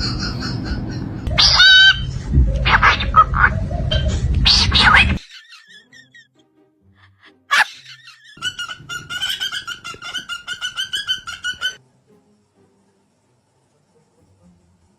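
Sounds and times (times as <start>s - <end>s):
parrot squawking: 0.0s - 6.3s, 7.5s - 11.8s.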